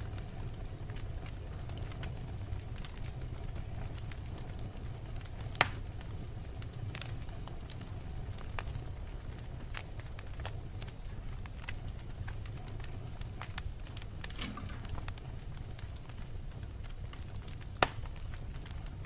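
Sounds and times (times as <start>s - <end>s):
flames rumbling: 0.0s - 19.0s
logs crackling and popping: 0.0s - 19.0s.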